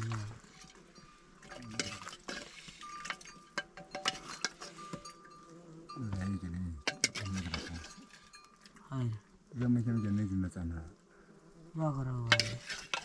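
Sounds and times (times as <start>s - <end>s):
liquid being handled: 0.0s - 5.3s
metal pots and utensils clinking: 0.0s - 8.9s, 12.3s - 13.0s.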